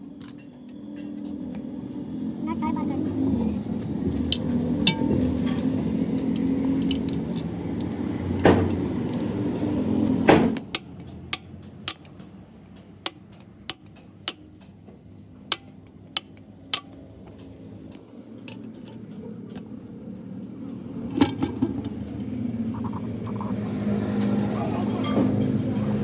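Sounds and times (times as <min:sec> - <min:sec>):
hammer tapping on metal: 0:10.3 - 0:14.8, 0:15.5 - 0:17.5.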